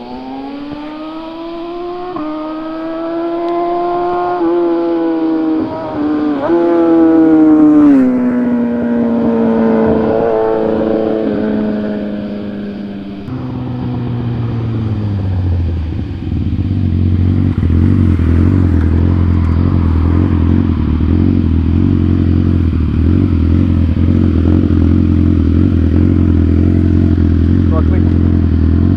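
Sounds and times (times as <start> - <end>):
motorcycle passing at speed: 0.0 - 28.9
motorcycle idling: 10.4 - 28.9.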